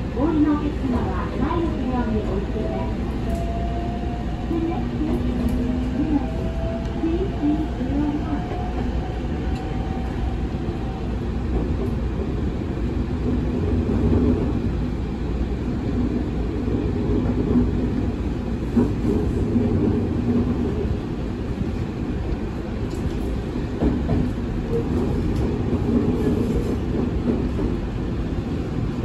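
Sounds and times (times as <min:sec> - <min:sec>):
train wheels rumbling: 0:00.0 - 0:29.0.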